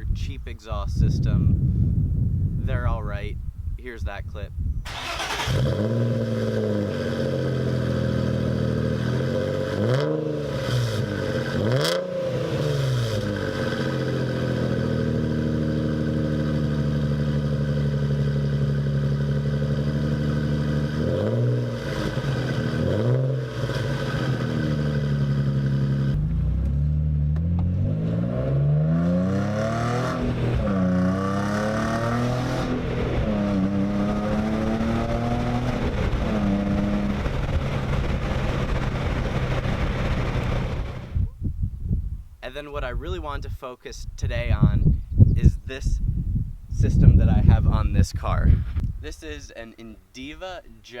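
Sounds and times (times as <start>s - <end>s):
exhaust crack: 4.8s - 41.5s
car engine idling and revving: 4.9s - 41.2s.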